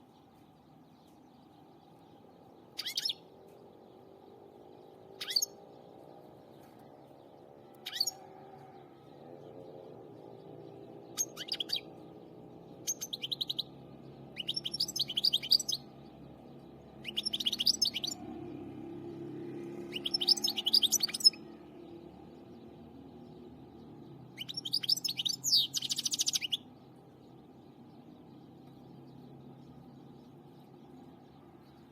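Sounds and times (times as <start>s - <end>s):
finch twittering song: 0.0s - 31.9s
finch chirping: 2.8s - 3.6s, 5.0s - 5.6s, 7.8s - 8.2s, 10.1s - 13.7s, 14.3s - 15.9s, 17.0s - 18.2s, 19.9s - 21.4s, 23.2s - 31.9s.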